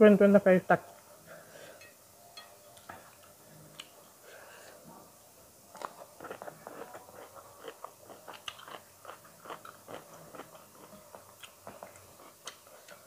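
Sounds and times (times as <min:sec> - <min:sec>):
person chewing crunchy food: 0:05.7 - 0:13.0.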